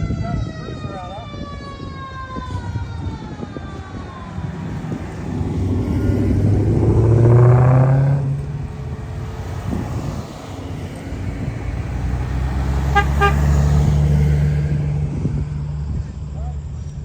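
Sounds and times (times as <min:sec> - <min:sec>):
car engines rumbling: 0:00.0 - 0:17.0
car horn toots: 0:12.8 - 0:13.8.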